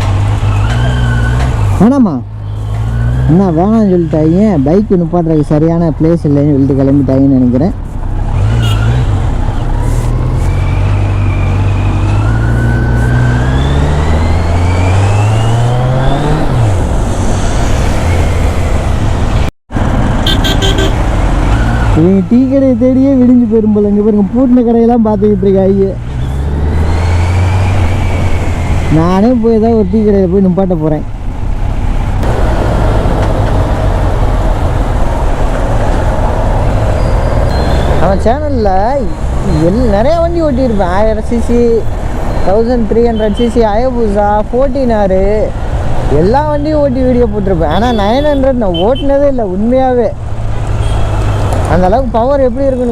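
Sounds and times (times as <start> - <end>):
road noise: 0.0 - 52.9
motorcycle engine accelerating: 8.3 - 22.1, 26.0 - 29.3.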